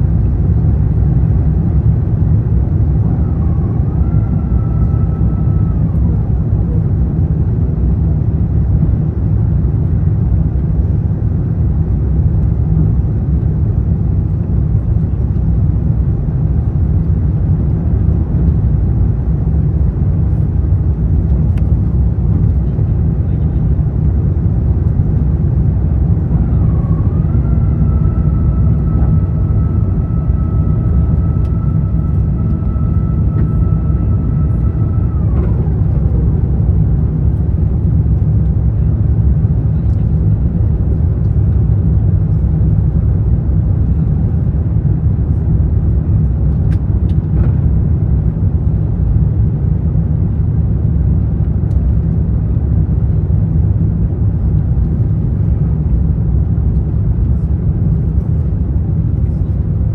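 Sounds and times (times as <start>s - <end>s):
airplane cabin rumble: 0.0s - 59.9s
thin whine: 26.0s - 38.6s.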